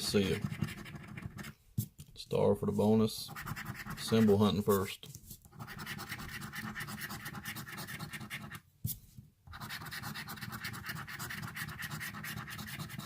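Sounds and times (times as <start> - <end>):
coin scraping scratch ticket: 0.0 - 1.5, 5.6 - 8.6, 9.6 - 13.0.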